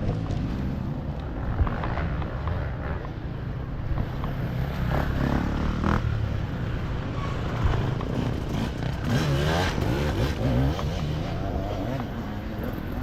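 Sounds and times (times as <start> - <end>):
motorcycle engines low drone: 0.0 - 13.0.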